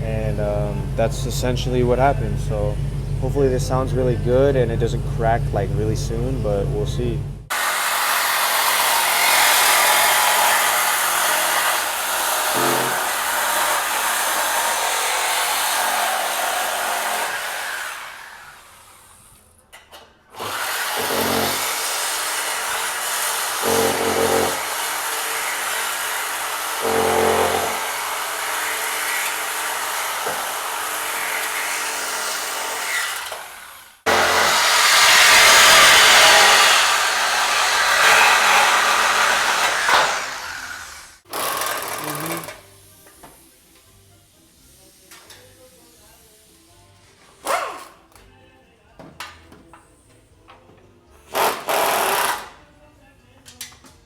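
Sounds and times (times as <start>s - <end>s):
power tools whirring: 7.5s - 19.5s, 20.3s - 43.1s, 51.3s - 52.6s.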